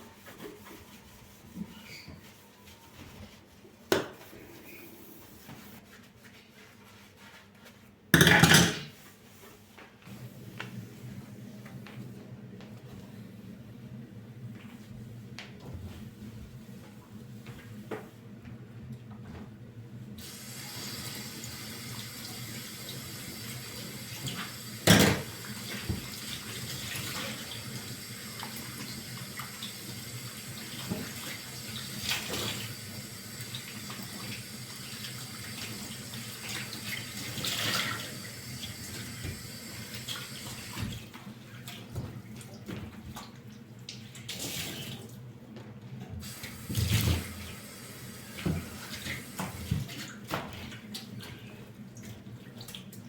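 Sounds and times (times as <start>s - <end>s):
water running into a sink: 20.2s - 41.9s, 46.2s - 50.0s.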